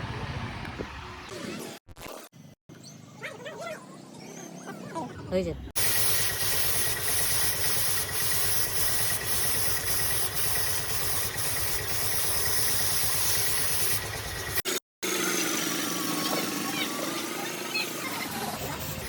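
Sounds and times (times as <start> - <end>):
hiss: 5.8 - 14.6
workshop machine motor running: 5.8 - 19.0.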